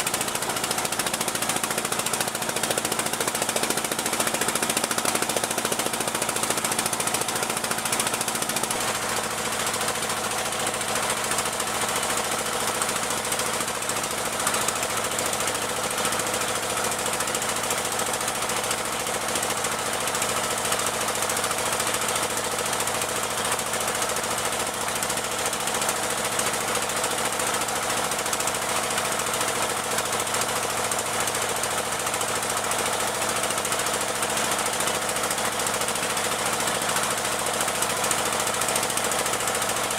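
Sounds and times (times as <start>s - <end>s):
boat engine pounding: 0.0s - 39.9s.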